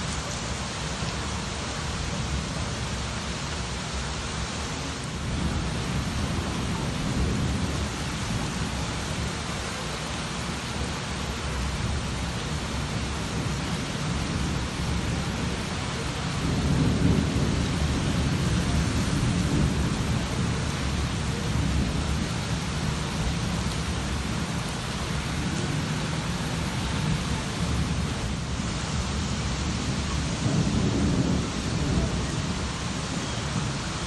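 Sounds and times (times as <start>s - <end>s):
steady rain falling: 0.0s - 34.0s
low rumble of thunder: 5.1s - 9.7s, 11.7s - 34.0s.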